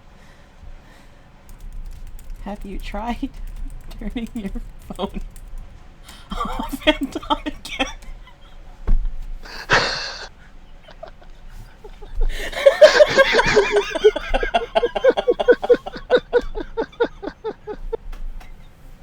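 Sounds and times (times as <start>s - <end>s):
person laughing: 6.3s - 8.6s, 9.5s - 18.0s
breathy snort: 9.4s - 10.3s.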